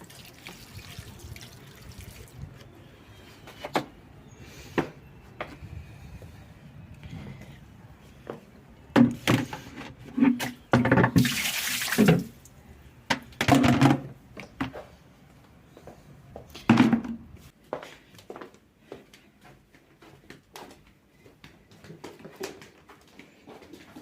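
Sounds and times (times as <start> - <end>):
liquid pouring: 0.0 - 2.4
kitchen items knocking and clattering: 9.0 - 11.4, 13.1 - 14.2, 16.7 - 17.2.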